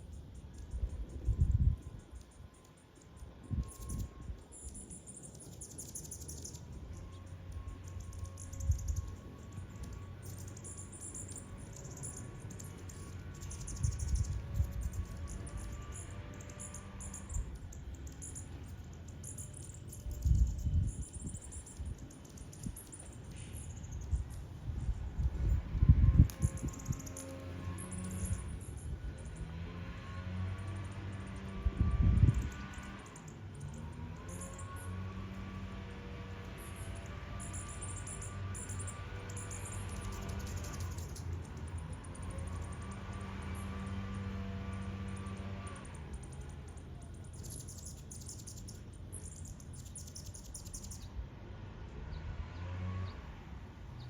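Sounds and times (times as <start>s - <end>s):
hummingbirds chipping: 0.0s - 51.2s
low whirring bursts: 0.0s - 51.2s.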